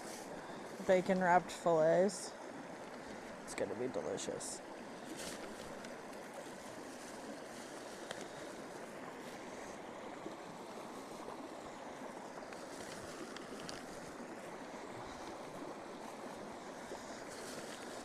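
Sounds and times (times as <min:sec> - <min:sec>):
faint fire crackles: 0:00.0 - 0:03.6, 0:04.4 - 0:18.0
campfire rushing: 0:04.4 - 0:18.0.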